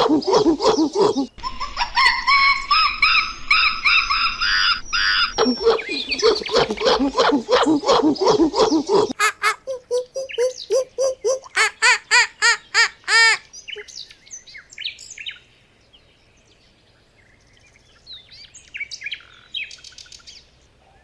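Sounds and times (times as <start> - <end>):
high-pitched chirping: 0.0 - 9.2
rapid animal calls: 0.0 - 12.0.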